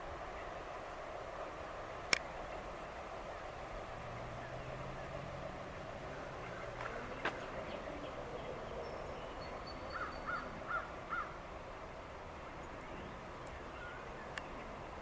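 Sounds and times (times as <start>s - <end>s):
outdoor background noise: 0.0s - 15.0s
bird calling: 6.1s - 11.4s.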